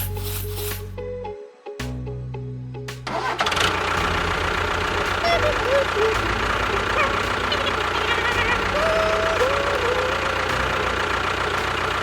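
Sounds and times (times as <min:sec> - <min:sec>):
engine knocking pulse: 0:03.1 - 0:12.0.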